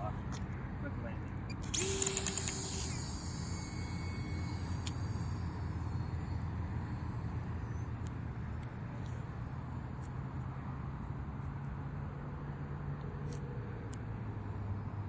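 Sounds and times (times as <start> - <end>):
model plane electric motor whining: 1.6 - 8.3.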